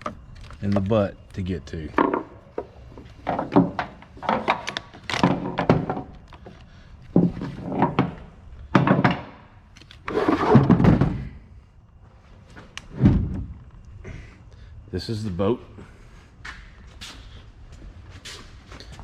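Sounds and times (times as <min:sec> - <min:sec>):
knocks thumps and clatter: 0:01.9 - 0:09.6, 0:10.4 - 0:11.5, 0:12.9 - 0:13.6.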